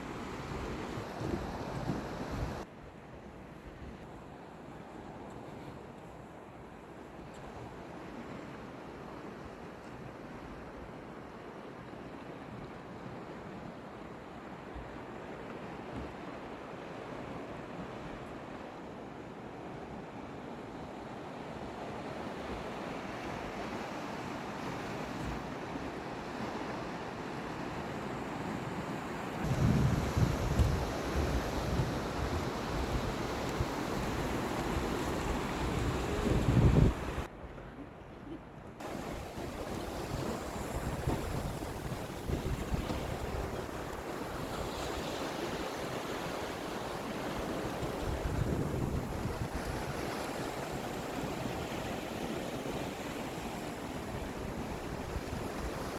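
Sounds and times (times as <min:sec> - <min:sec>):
sea waves washing ashore: 0:00.0 - 0:02.7, 0:04.2 - 0:38.0, 0:38.8 - 0:55.9
wind buffeting microphone: 0:29.4 - 0:37.7, 0:38.8 - 0:51.8.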